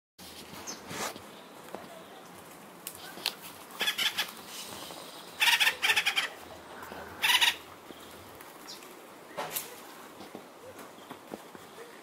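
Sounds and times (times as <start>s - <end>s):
harsh bird calls: 3.8s - 9.4s.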